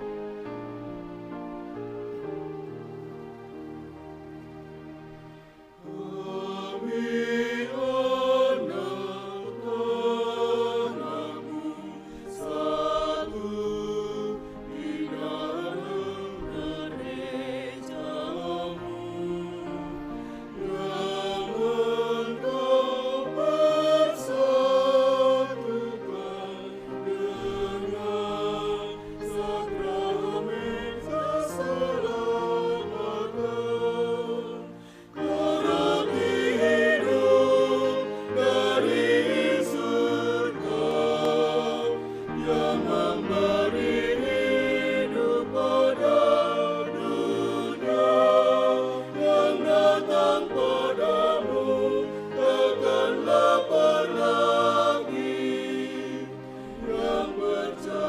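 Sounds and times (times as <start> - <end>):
mixed choir singing a hymn: 0.0 - 58.0.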